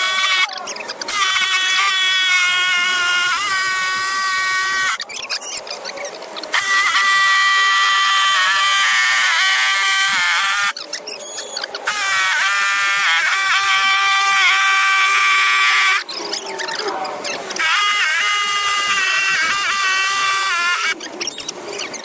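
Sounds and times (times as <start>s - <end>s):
power tool motor whining: 0.0s - 5.1s, 6.5s - 10.8s, 11.8s - 16.0s, 17.6s - 21.0s.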